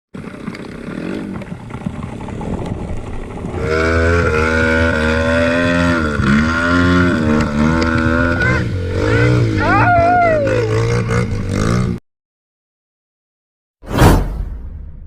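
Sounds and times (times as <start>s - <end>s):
motorcycle engine revving: 0.2s - 12.0s.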